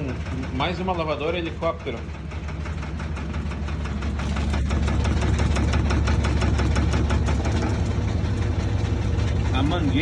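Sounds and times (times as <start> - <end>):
washing machine spinning: 0.0 - 10.0
drain hose rattling: 3.2 - 10.0.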